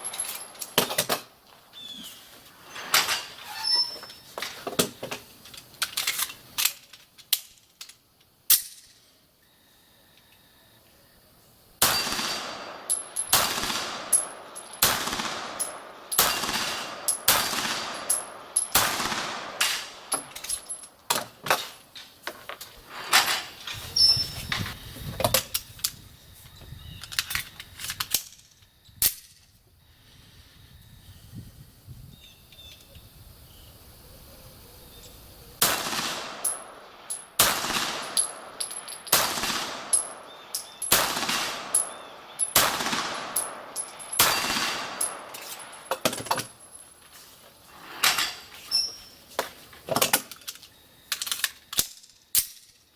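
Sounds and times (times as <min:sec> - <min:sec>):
metallic pings of steel targets: 0:11.8 - 0:18.9, 0:36.3 - 0:46.8
pistol shots echoing: 0:11.8 - 0:20.2, 0:35.6 - 0:45.9.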